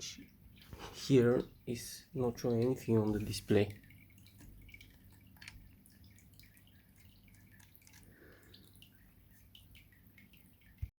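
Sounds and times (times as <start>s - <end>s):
faint water dripping: 0.0s - 10.9s
low steady hum: 0.0s - 10.9s.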